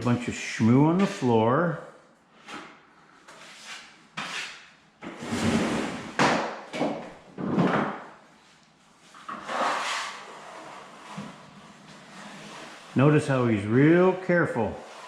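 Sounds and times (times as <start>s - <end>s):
trowel scraping wood floor: 3.3s - 6.1s, 9.1s - 15.0s.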